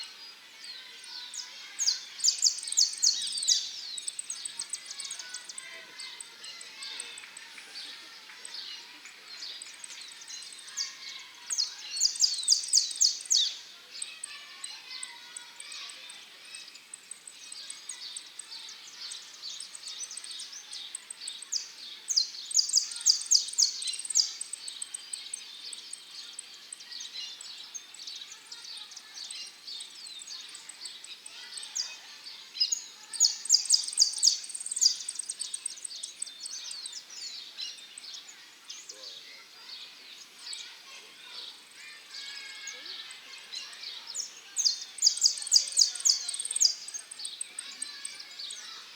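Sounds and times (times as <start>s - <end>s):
soft bird chirping: 22.2s - 48.9s.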